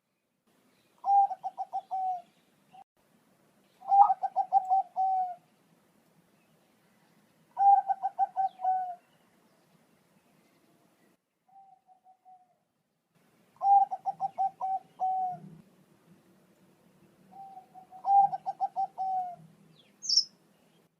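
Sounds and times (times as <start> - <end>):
dove cooing: 1.0 - 2.3, 3.8 - 5.5, 7.5 - 9.0, 13.6 - 15.6, 17.3 - 20.3.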